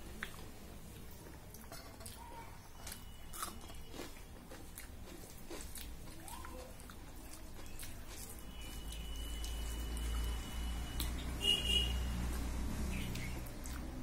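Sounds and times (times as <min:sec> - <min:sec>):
person chewing with wet mouth clicks: 0:00.1 - 0:02.2, 0:13.1 - 0:13.9.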